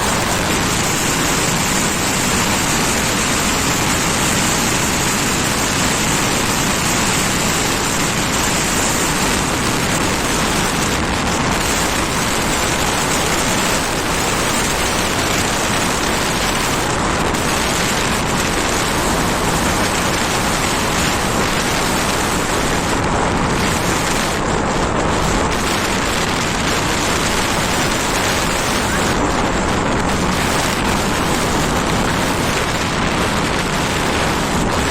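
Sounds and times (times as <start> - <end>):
wind and road rushing noise: 0.0 - 34.9.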